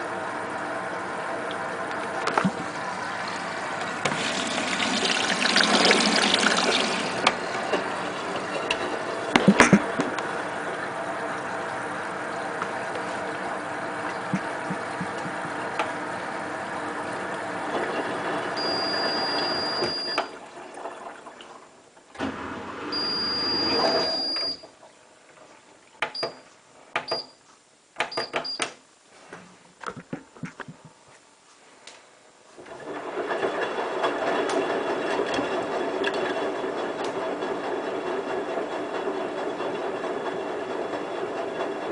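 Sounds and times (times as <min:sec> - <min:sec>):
washing machine rushing noise: 0:00.0 - 0:24.7, 0:32.6 - 0:41.9
short beeps: 0:23.0 - 0:24.6.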